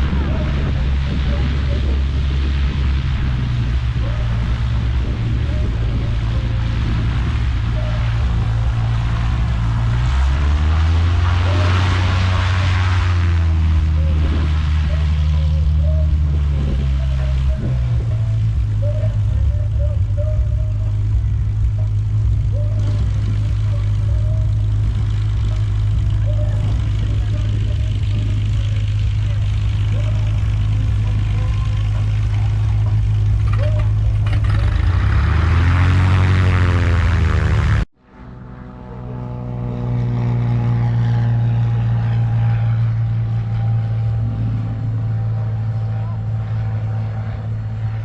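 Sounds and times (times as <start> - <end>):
aircraft engine idling: 0.0 - 48.0.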